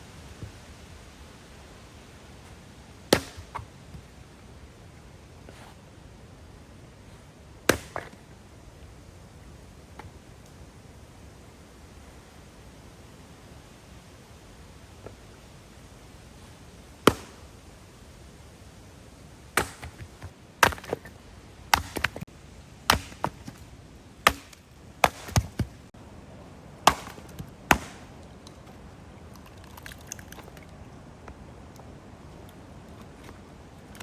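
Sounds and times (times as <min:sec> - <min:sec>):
blade chopping: 0:03.1 - 0:03.6, 0:19.6 - 0:22.2, 0:22.9 - 0:23.6, 0:24.2 - 0:25.9, 0:26.9 - 0:28.2.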